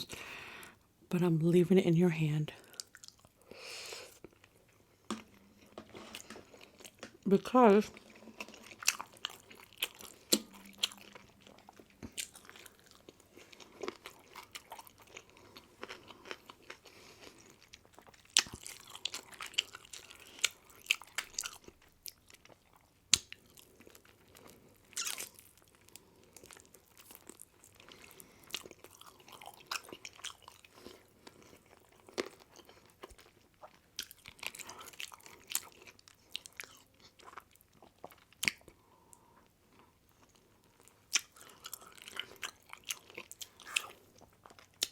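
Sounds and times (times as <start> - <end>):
person chewing pizza: 2.7 - 44.9
crunchy bites and smacks: 17.8 - 22.3.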